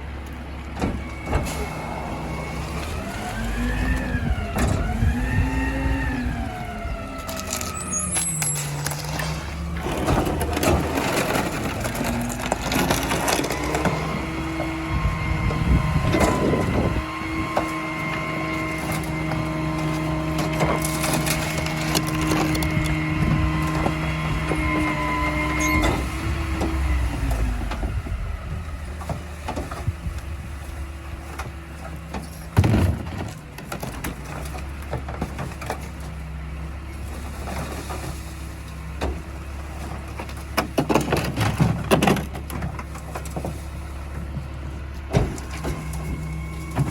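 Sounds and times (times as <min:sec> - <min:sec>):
truck engine rumble: 0:00.0 - 0:46.9
wood cracking and snapping: 0:09.8 - 0:14.0, 0:19.9 - 0:23.0.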